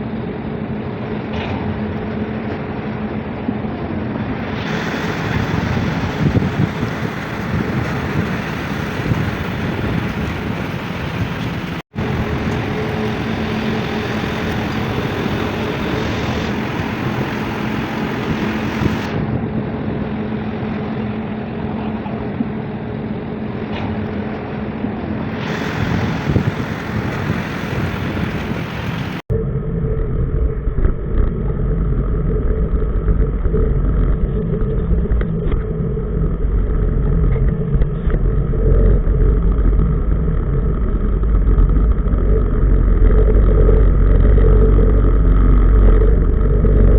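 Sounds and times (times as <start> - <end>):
tugboat diesel engine: 0.0 - 29.2
water noise: 0.0 - 46.9
wind: 0.0 - 46.9.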